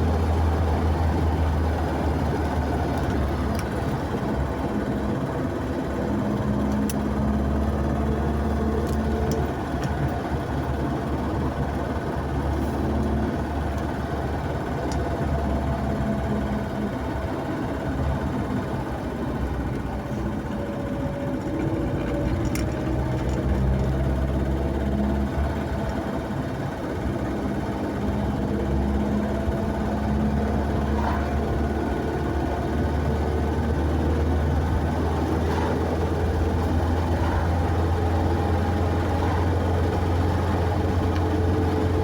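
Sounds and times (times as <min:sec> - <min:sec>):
car engine hum: 0:00.0 - 0:42.0
road noise: 0:00.0 - 0:42.0.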